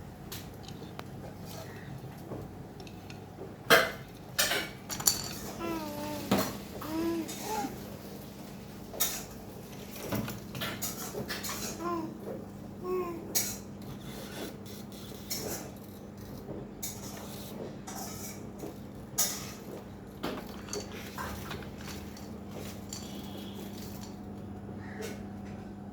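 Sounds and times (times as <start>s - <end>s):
objects knocking and clattering: 2.2s - 6.7s, 18.1s - 24.2s.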